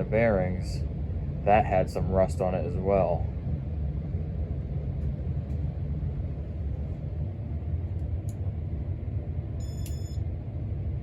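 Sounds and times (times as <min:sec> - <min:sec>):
ceiling fan humming: 0:00.0 - 0:11.0
short electronic beep: 0:09.6 - 0:10.2.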